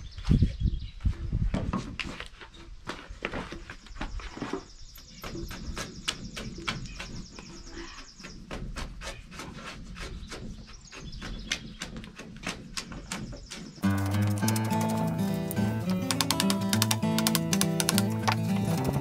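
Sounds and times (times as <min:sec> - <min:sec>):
sharp clicks and knocks: 0:11.5 - 0:19.0.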